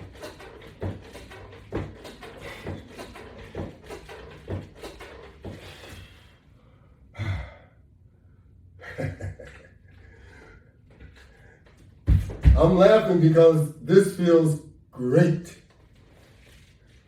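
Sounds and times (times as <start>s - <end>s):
man breathing hard and sighing: 5.5s - 8.0s, 10.0s - 11.8s
loud exhalations: 7.1s - 7.8s
short knocks: 12.1s - 13.0s.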